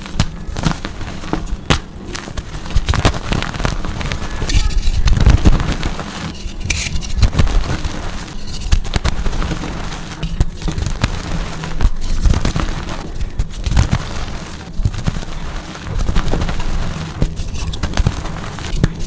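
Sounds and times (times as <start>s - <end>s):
chalk being crushed: 0.0s - 19.0s.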